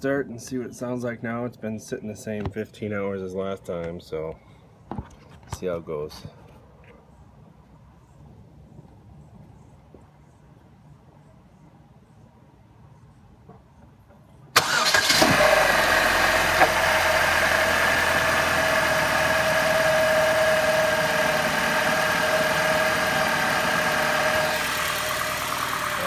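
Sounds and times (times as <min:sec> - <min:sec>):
car engine cranking and idling: 0:14.6 - 0:26.0.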